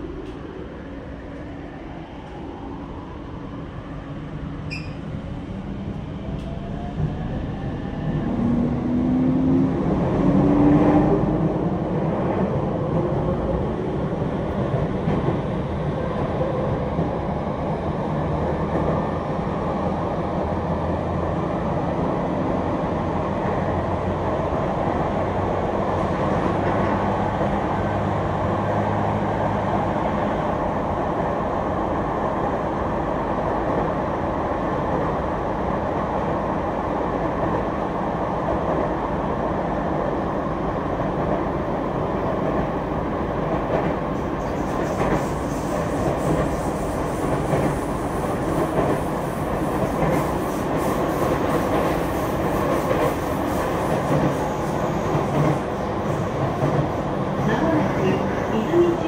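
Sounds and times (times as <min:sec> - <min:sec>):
train wheels running on rails: 0:40.9 - 0:59.0.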